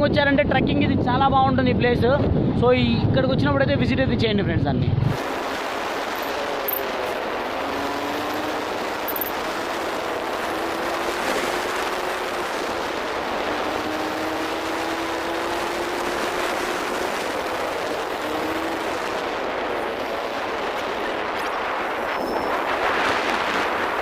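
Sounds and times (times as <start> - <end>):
wind and road rush: 0.0 - 24.0
vehicle engine hum: 5.1 - 24.0.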